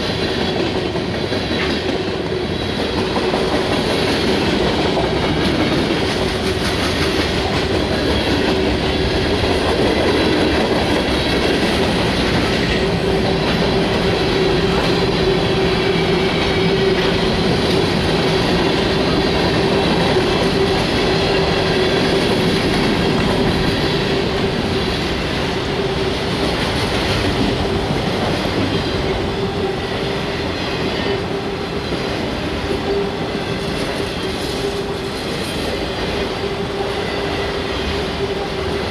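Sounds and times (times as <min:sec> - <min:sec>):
wheels clickety-clack: 0:00.0 - 0:29.6
steel wheels rumbling on rail: 0:00.0 - 0:38.9.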